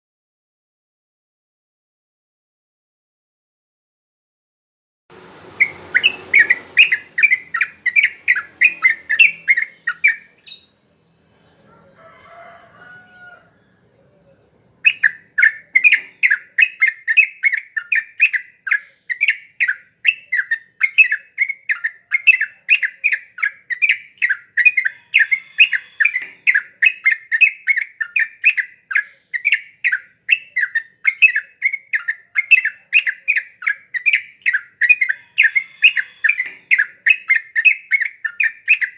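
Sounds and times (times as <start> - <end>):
bird chattering song: 5.5 - 10.9, 13.7 - 38.9.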